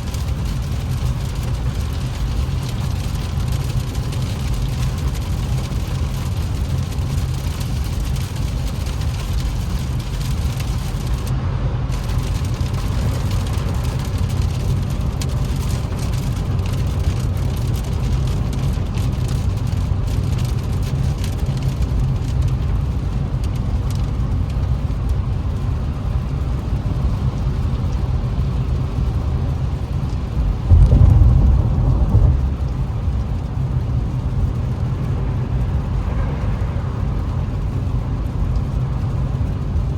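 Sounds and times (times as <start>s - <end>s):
rain hitting car: 0.0s - 39.9s
car engine and tyres drone: 24.8s - 39.9s
louder low rumble: 29.1s - 39.9s.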